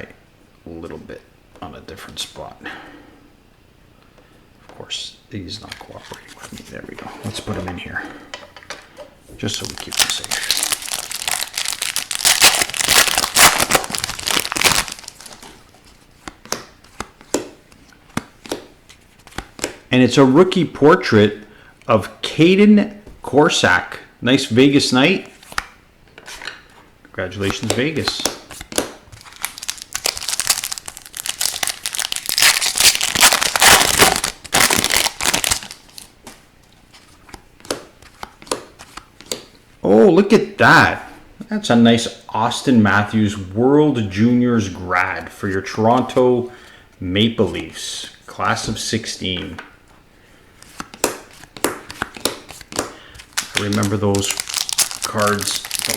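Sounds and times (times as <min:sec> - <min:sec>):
thin plastic crinkling: 0:09.4 - 0:16.0, 0:27.4 - 0:36.2, 0:50.6 - 0:55.9
cards clicking and tapping: 0:16.2 - 0:19.8, 0:27.4 - 0:32.6, 0:37.3 - 0:39.5, 0:50.6 - 0:55.9.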